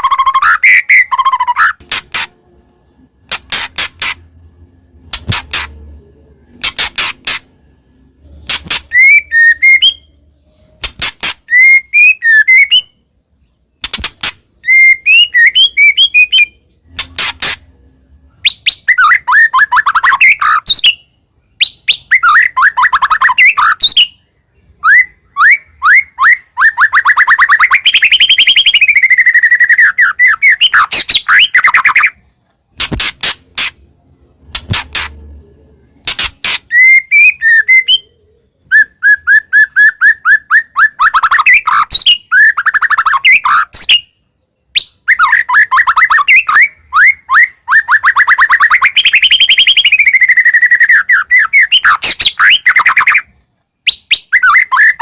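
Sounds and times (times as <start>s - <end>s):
songbird whistles and trills: 0.0s - 55.0s
bird sharp clicks: 3.2s - 4.2s, 5.1s - 5.8s, 6.6s - 7.5s, 10.8s - 11.6s, 13.8s - 14.4s, 16.9s - 17.6s, 32.8s - 33.8s.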